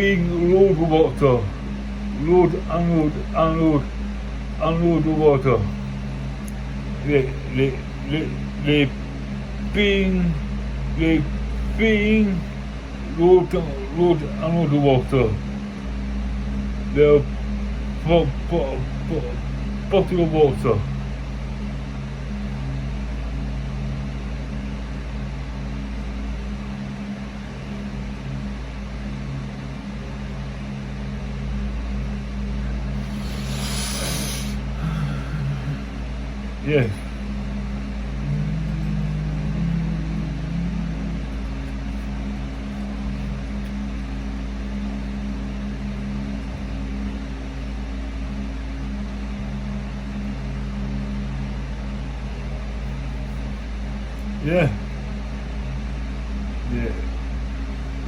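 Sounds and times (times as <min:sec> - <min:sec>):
held low tones: 0:00.0 - 0:30.0, 0:30.6 - 0:58.0
steady mechanical hum: 0:00.0 - 0:58.0
even hiss: 0:33.0 - 0:35.9.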